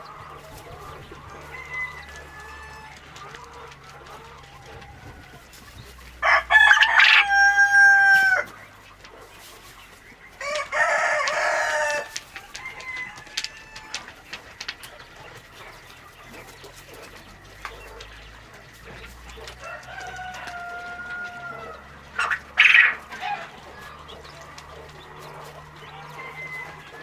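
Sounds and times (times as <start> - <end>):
rooster crowing: 0.0 - 8.6, 10.4 - 14.2, 19.4 - 27.0
chicken clucking: 0.0 - 27.0.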